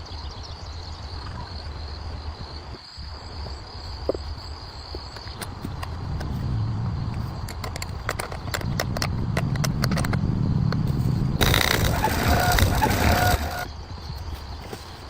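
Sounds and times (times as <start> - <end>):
low engine-like rumble: 5.5 - 13.6
sharp clicks: 7.4 - 13.7.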